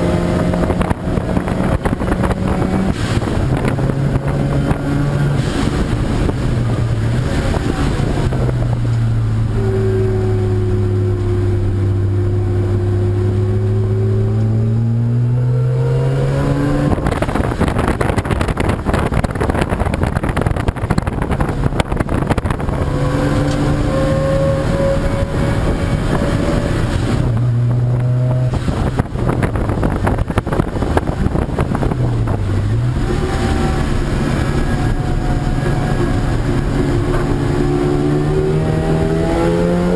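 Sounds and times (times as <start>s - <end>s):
racing car engines passing: 21.6s - 39.9s.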